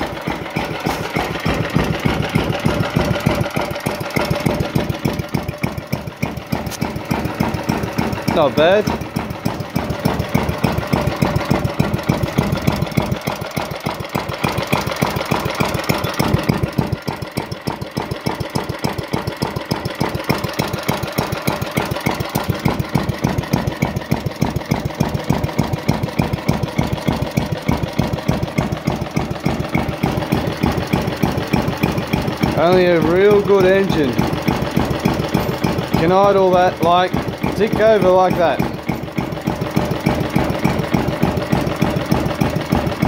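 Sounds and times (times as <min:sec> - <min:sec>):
petrol engine idling: 0:00.0 - 0:43.0.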